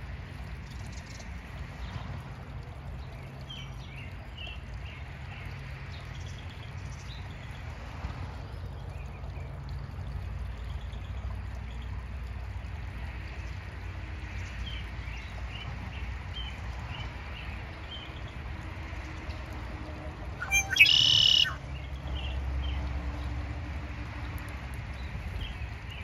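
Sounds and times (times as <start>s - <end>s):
low outdoor rumble: 0.0s - 26.0s
small birds chirping: 20.4s - 21.6s.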